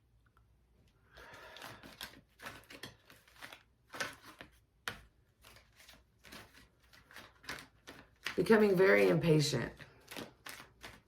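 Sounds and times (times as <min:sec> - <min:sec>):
cards rustling and flicking: 0:01.2 - 0:08.8, 0:09.8 - 0:11.0.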